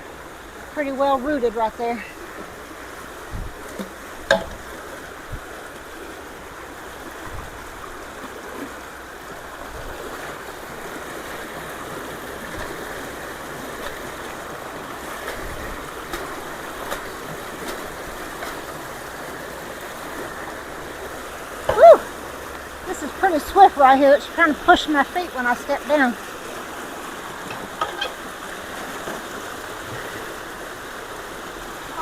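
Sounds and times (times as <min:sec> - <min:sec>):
creek water rushing: 0:00.0 - 0:32.0
sharp knock: 0:03.8 - 0:04.6.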